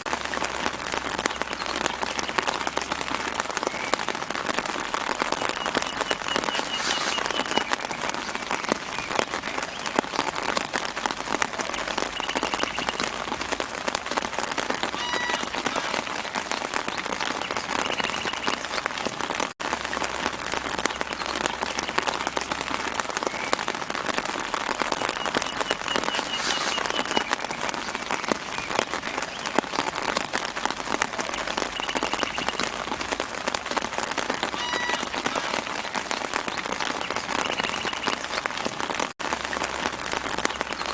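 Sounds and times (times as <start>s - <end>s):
rain pattering on leaves: 0.0s - 40.9s
short high bird chirps: 5.5s - 7.7s, 25.2s - 27.3s.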